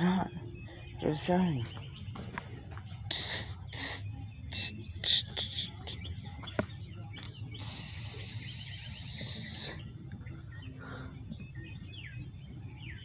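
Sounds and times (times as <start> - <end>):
small birds chirping: 0.0 - 13.0
hiss: 3.1 - 4.0, 7.6 - 9.8.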